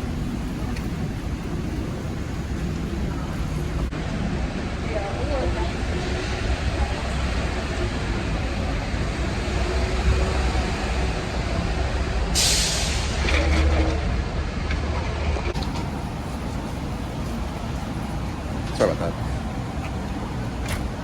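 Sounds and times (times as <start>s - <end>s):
short hiss: 12.4s - 13.2s.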